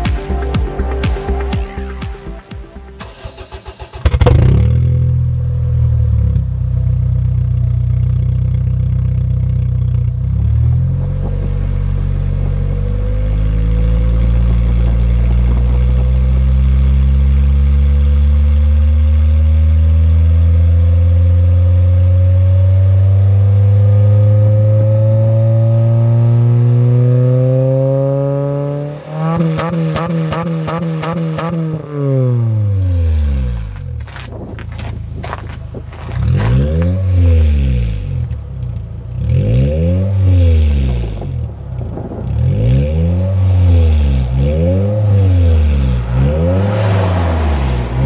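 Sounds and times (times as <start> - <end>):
electronic music: 0.0 - 4.9
car engine starting and revving: 2.7 - 48.0.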